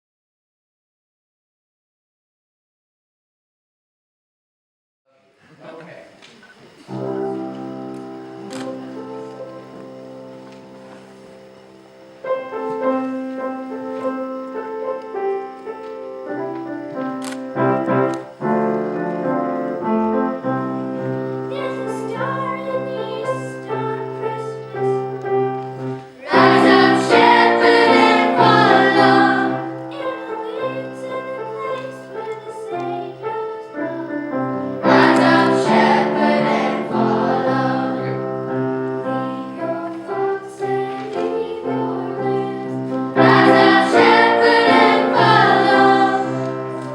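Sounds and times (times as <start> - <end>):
choir singing: 6.7 - 46.9
piano accompaniment: 6.8 - 46.9.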